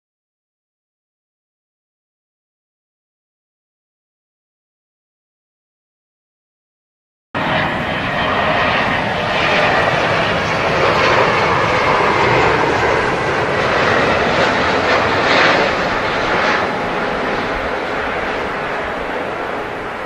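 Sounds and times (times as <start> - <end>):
jet engines roaring with whine: 7.4 - 20.0.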